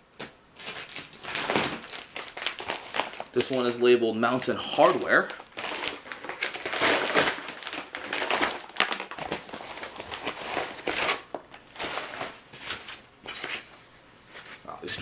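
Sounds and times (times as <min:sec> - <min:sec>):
packing material crumpling: 0:00.6 - 0:13.0.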